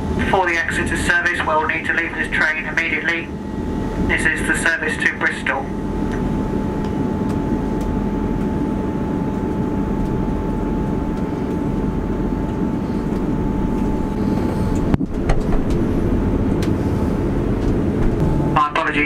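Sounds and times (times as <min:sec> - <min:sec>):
thin steady whine: 0:00.0 - 0:19.0
train rumble inside carriage: 0:00.0 - 0:19.0.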